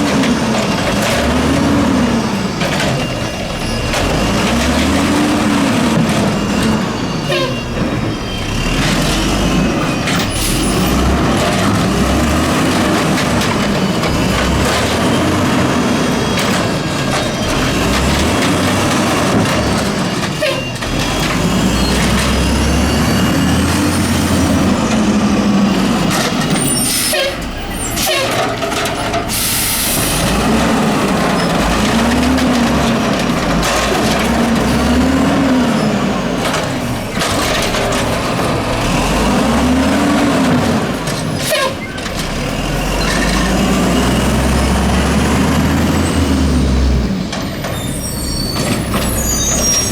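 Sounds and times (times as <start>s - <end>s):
garbage truck engine revving: 0.0s - 49.9s
air brake hiss: 29.3s - 30.2s.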